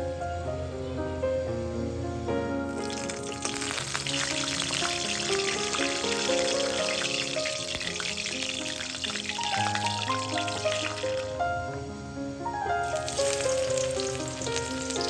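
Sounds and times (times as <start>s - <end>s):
background music: 0.0s - 15.0s
food sizzling in hot oil: 2.7s - 11.4s, 12.8s - 15.0s.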